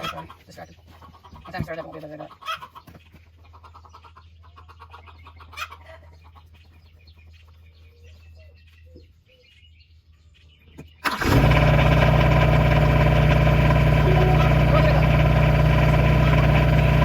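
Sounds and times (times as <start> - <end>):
chickens clucking: 0.0 - 9.1, 13.4 - 17.0
tractor engine cranking and idling: 11.0 - 17.0
low hum: 11.3 - 17.0.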